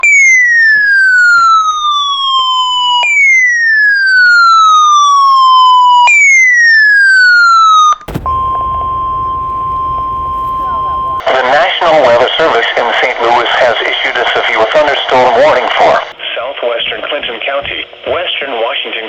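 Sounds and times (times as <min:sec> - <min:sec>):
weather radio alarm tone: 0:08.1 - 0:11.2.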